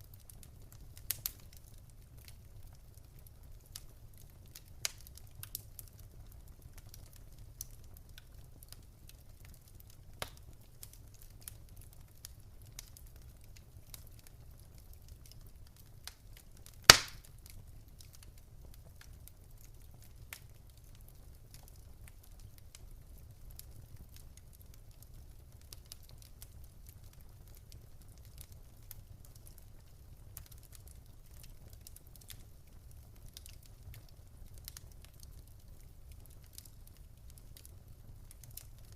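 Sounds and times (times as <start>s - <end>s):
fireplace fire crackling: 0.0s - 38.9s
loud sharp pop: 16.9s - 17.2s.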